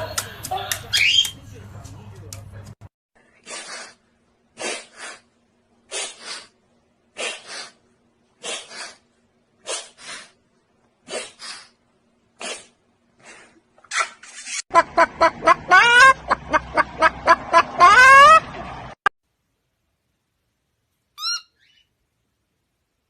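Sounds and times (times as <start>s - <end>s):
animal sneeze-like puffs: 4.6s - 5.2s, 5.9s - 6.5s, 7.2s - 7.8s, 8.4s - 9.0s, 9.6s - 10.4s, 11.1s - 11.8s, 12.4s - 13.6s.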